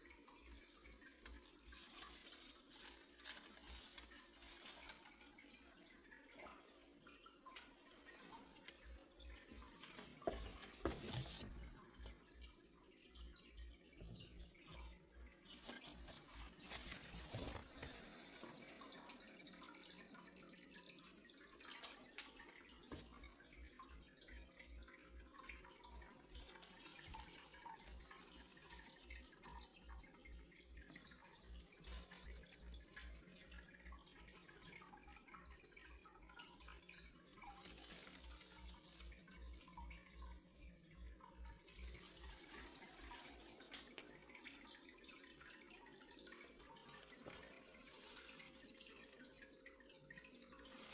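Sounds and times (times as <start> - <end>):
water dripping: 0.0 - 50.9
tap running into sink: 9.5 - 12.2.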